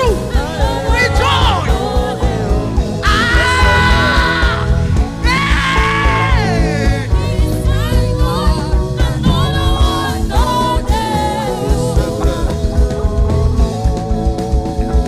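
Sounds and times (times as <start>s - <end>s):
gospel band playing: 0.0s - 15.0s.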